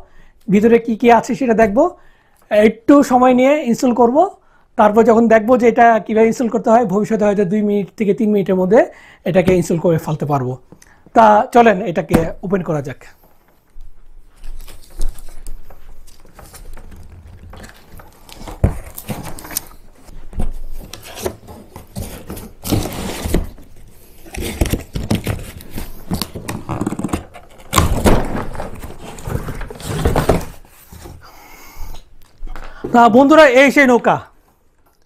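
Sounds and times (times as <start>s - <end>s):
cardboard and plastic scraping: 14.4s - 31.2s
cardboard box being opened: 14.6s - 19.9s, 20.7s - 31.2s.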